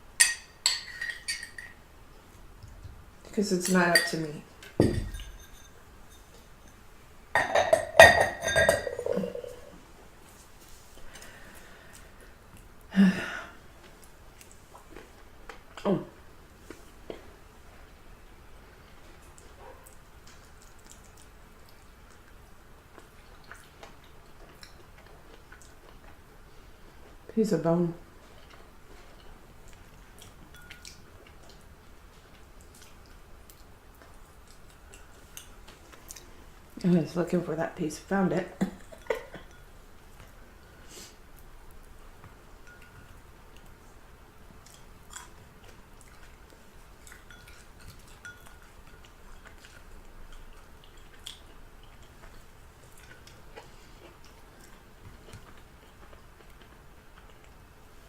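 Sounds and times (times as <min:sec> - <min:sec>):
cutlery tapping on dish: 0:07.4 - 0:09.4
chewing with wet mouth clicks: 0:13.9 - 0:15.8, 0:19.1 - 0:26.3, 0:28.2 - 0:36.4, 0:41.3 - 0:43.9, 0:44.5 - 0:58.0.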